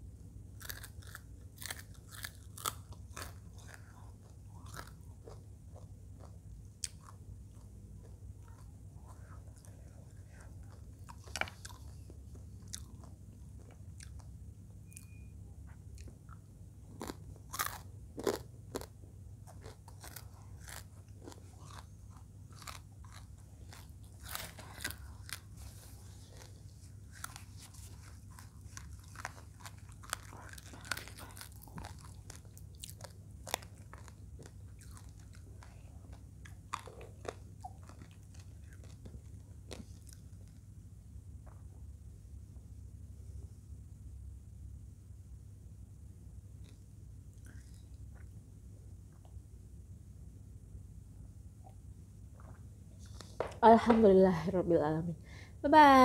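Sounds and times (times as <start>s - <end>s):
person chewing crunchy food: 0.5s - 15.3s, 15.9s - 40.6s, 47.4s - 48.4s, 52.4s - 53.6s.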